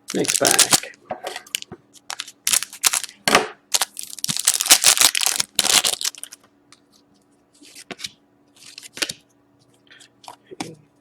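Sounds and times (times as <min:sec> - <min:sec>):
wrapper tearing and crinkling: 0:00.1 - 0:00.9, 0:01.5 - 0:06.4.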